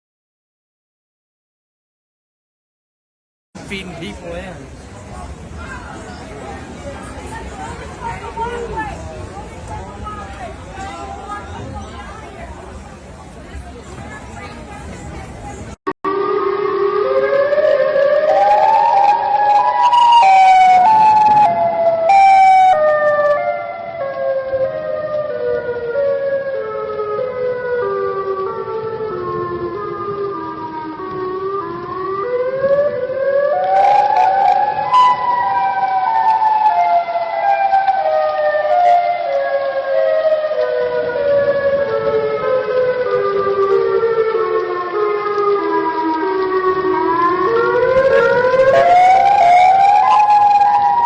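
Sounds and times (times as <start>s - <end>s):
warning siren wailing: 16.1s - 51.0s.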